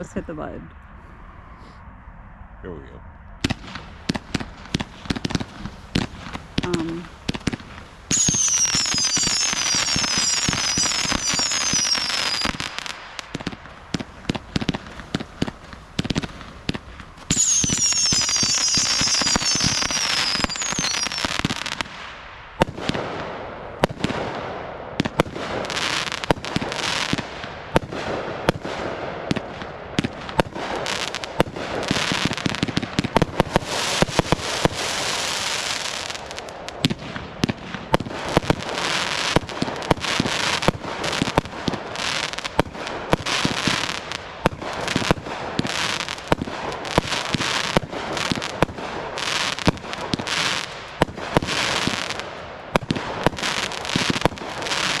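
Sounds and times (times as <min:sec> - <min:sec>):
firework whistles: 0:03.4 - 0:22.1, 0:30.4 - 0:36.9
firework pops and crackling: 0:03.4 - 0:55.0.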